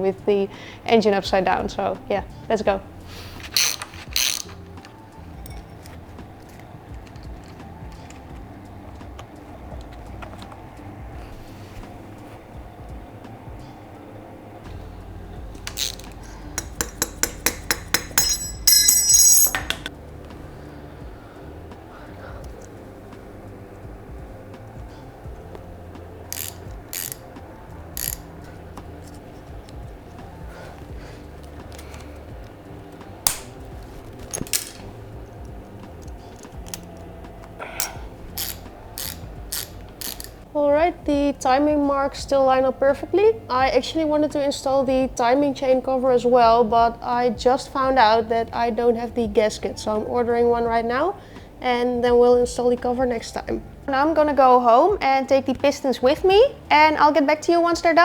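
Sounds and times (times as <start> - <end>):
low steady hum: 0.0 - 58.0
ringing metal clink: 5.3 - 6.6, 15.8 - 19.9
metallic clinks of hand tools: 5.3 - 8.2, 15.7 - 19.9, 26.3 - 27.3, 28.0 - 28.3, 37.8 - 40.4.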